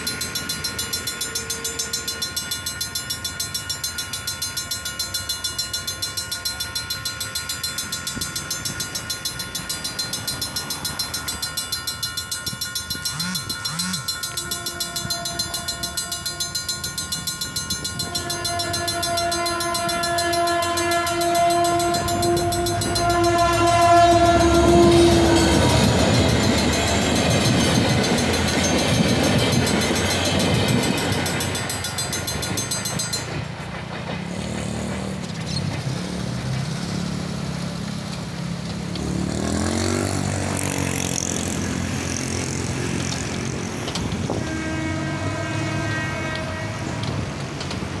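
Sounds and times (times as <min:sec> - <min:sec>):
crossing warning bell ringing: 0:00.0 - 0:37.6, 0:38.3 - 0:48.0
locomotive rumbling: 0:00.0 - 0:48.0
traffic noise: 0:00.0 - 0:48.0
train horn blast: 0:13.0 - 0:17.1, 0:17.8 - 0:27.1, 0:39.2 - 0:47.6.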